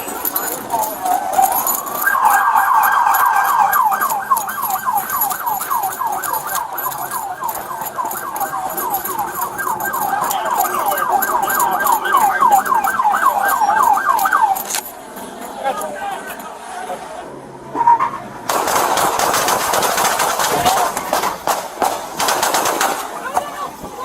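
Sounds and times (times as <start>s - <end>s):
police siren yelping: 0.0s - 14.9s, 17.7s - 18.3s.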